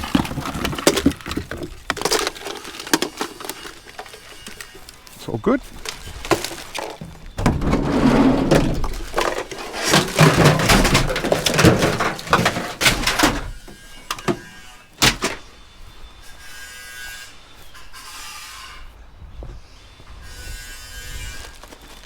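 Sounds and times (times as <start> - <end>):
junk clattering and rustling: 0.0 - 15.5.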